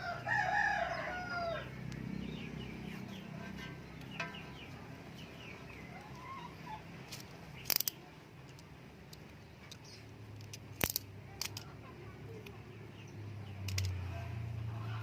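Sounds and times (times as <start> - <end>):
chickens clucking: 1.4 - 7.6
sharp clicks: 7.1 - 11.7, 13.6 - 14.0.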